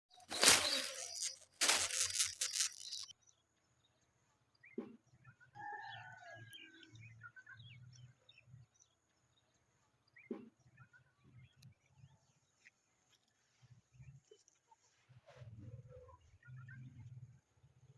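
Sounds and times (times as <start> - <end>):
loud rustling noise: 0.1 - 3.1
bird calls and squawks: 0.2 - 3.1.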